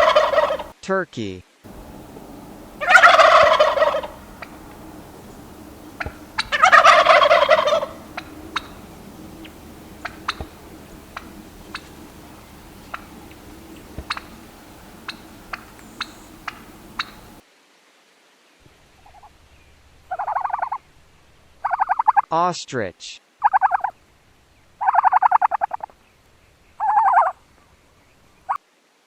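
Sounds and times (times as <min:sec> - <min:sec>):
turkey clucks: 0:00.0 - 0:00.8, 0:01.7 - 0:17.4, 0:20.0 - 0:20.8, 0:21.6 - 0:22.3, 0:23.4 - 0:23.9, 0:24.8 - 0:25.9, 0:26.8 - 0:27.4
turkey gobbling: 0:00.0 - 0:00.8, 0:01.7 - 0:17.4, 0:20.0 - 0:20.8, 0:21.6 - 0:22.2, 0:23.4 - 0:23.9, 0:24.8 - 0:25.9, 0:26.8 - 0:27.4.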